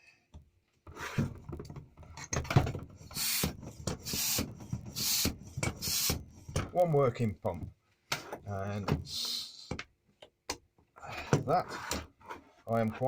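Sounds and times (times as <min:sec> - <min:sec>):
foot pump puffing air: 0:03.0 - 0:06.2.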